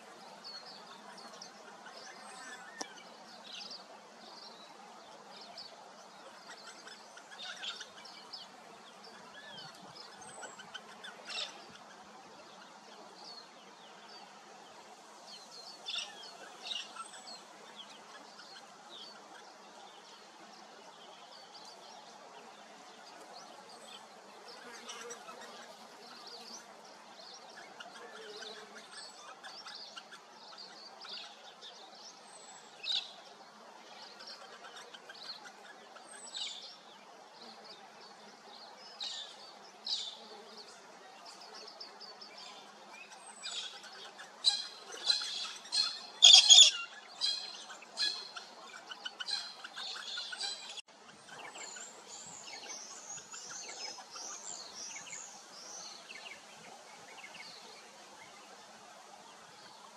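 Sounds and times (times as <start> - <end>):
birds chirping and calling: 41.3 - 56.4.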